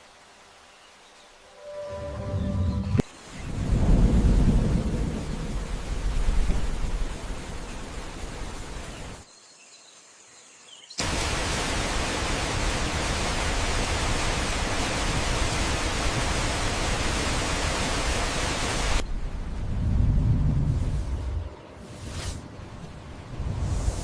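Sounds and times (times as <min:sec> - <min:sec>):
falling water: 0:00.0 - 0:09.2, 0:11.0 - 0:19.8.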